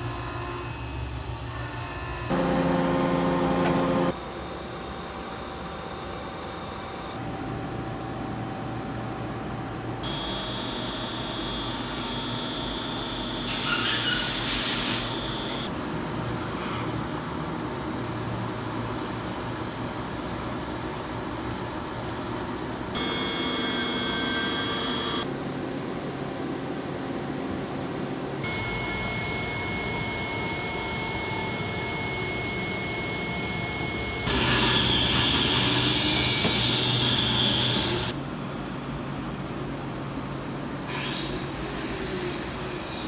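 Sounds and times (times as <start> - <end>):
cnc machine running: 0.1 - 4.2, 10.0 - 13.7, 14.8 - 15.7, 22.8 - 25.6, 28.3 - 38.1
high machine whine: 10.0 - 15.8, 18.0 - 38.2
cutting hiss: 13.4 - 15.7.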